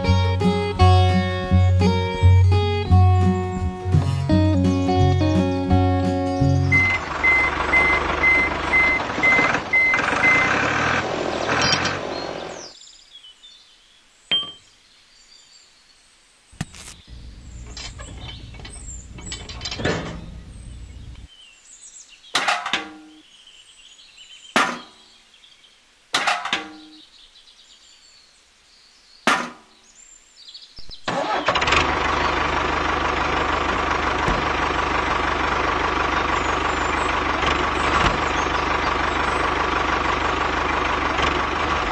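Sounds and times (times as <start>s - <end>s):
background music: 0.0s - 7.1s.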